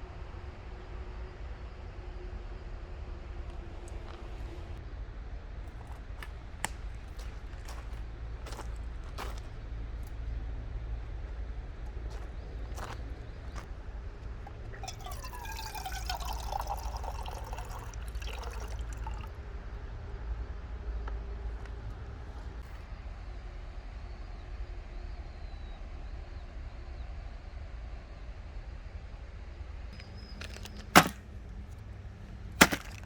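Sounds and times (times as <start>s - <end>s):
liquid pouring into container: 14.5s - 19.3s.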